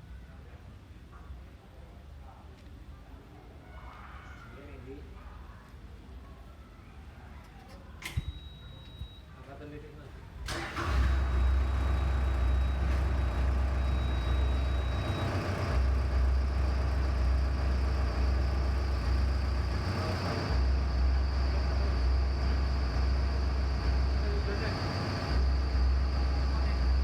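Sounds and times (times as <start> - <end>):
excavator diesel engine rumble: 10.5 - 27.0.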